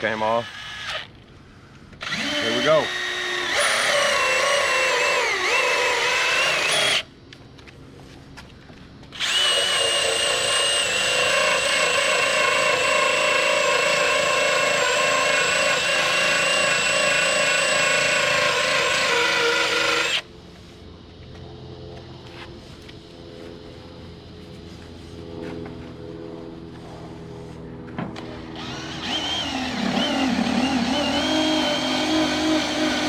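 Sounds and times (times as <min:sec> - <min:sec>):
power drill whining: 0:00.0 - 0:01.1, 0:02.0 - 0:07.1, 0:09.1 - 0:20.2, 0:28.2 - 0:33.0.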